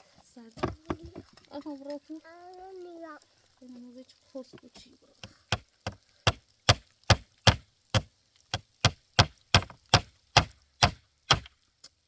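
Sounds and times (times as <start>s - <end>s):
hand tool striking wood: 5.5s - 11.5s.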